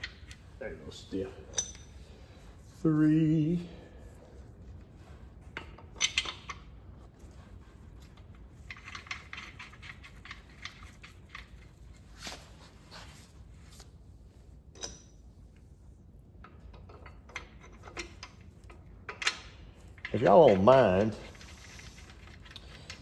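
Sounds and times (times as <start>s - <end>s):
metal parts and tools clinking: 1.5s - 2.0s, 5.6s - 6.7s, 8.1s - 12.0s.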